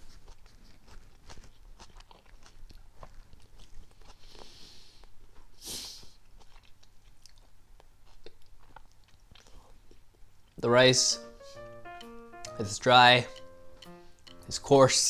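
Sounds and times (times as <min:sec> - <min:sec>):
person chewing crunchy rice: 0:00.0 - 0:10.4
short breathy hisses: 0:05.6 - 0:06.2.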